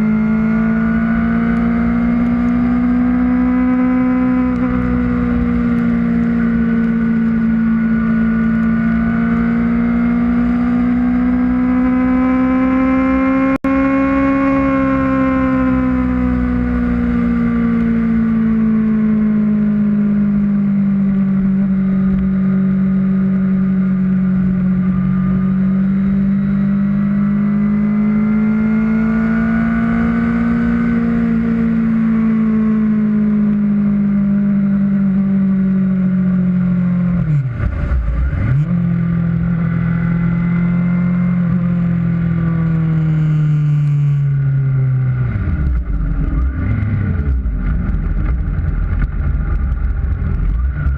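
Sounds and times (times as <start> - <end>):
motorcycle engine cruising: 0.0 - 50.9
wind rumble: 44.2 - 50.9.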